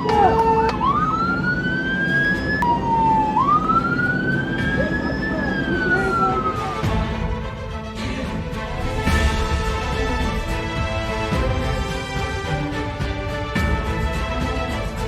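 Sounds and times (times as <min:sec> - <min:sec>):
police siren wailing: 0:00.0 - 0:07.0.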